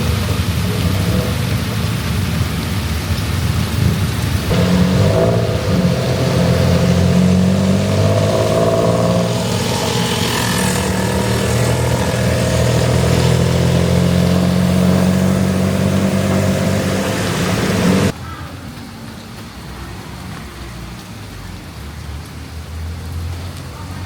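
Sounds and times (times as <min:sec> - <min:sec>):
heavy rain hiss: 0:00.0 - 0:18.2
small engine running: 0:04.5 - 0:18.1.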